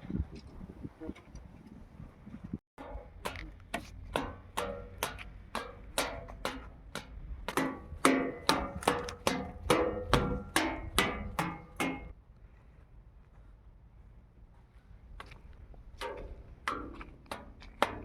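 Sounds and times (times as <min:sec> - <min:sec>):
hammer striking metal: 0:02.8 - 0:03.5, 0:04.1 - 0:12.2.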